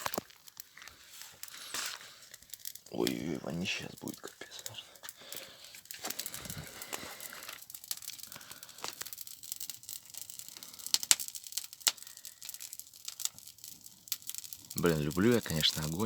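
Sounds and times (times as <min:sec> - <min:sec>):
burning paper crackling: 0:00.0 - 0:16.0.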